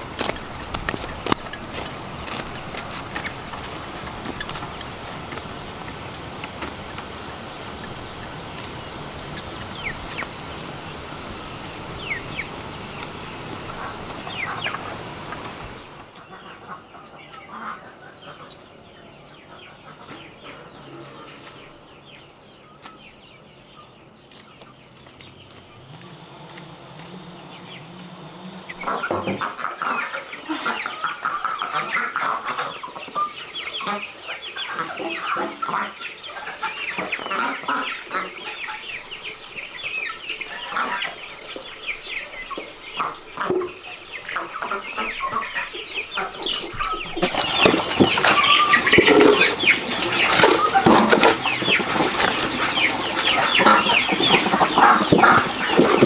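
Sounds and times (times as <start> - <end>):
steady hiss: 0.0 - 16.3
chickens clucking: 0.0 - 56.0.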